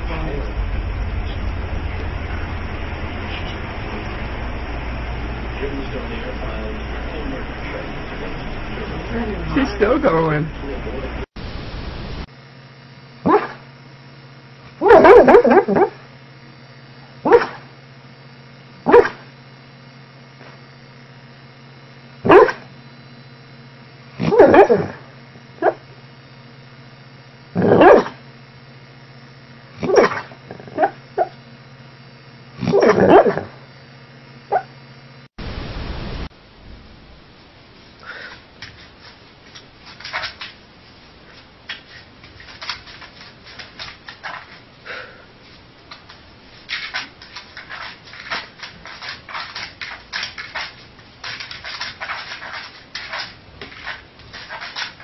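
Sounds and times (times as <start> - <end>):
dog barking in its sleep: 13.2 - 13.7, 14.8 - 16.0, 17.2 - 17.8, 18.8 - 19.3, 22.2 - 22.7, 24.2 - 25.9, 27.5 - 28.2, 29.7 - 31.4, 32.6 - 33.6, 34.5 - 34.8
dog claws scratching a wall: 38.6 - 40.6, 41.7 - 44.6, 45.9 - 55.0.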